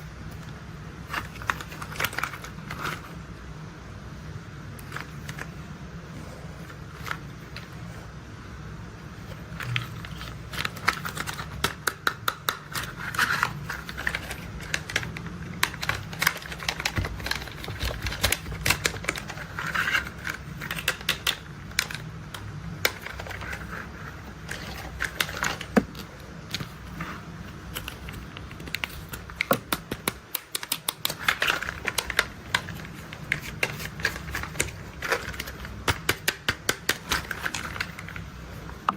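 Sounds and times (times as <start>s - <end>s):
low steady hum: 0.0s - 38.9s
plastic toys clicking and tapping: 9.6s - 27.0s, 27.6s - 38.9s.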